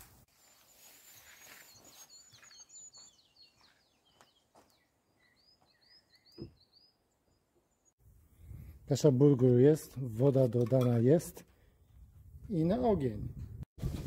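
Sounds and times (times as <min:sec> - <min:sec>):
high bird chirps: 0:00.4 - 0:08.0.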